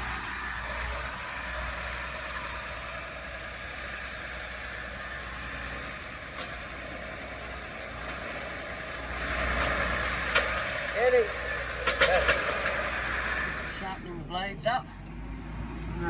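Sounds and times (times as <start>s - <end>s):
tractor and chopper running: 0.0s - 16.0s.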